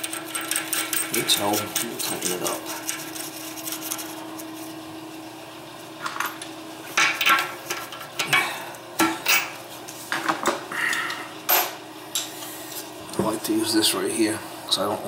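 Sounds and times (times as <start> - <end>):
wrench clinking on metal bolts: 0.0 - 2.4.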